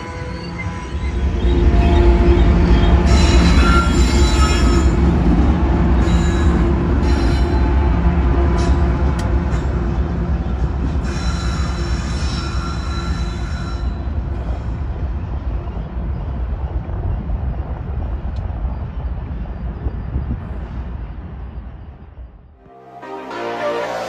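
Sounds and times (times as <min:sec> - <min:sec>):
high wheel squeal: 0:00.0 - 0:05.2, 0:11.0 - 0:14.1
freight train rumbling past: 0:00.0 - 0:24.0.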